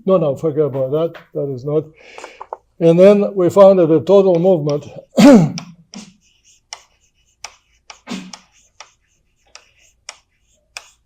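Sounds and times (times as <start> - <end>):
chalk tapping and scraping on blackboard: 4.0 - 11.0.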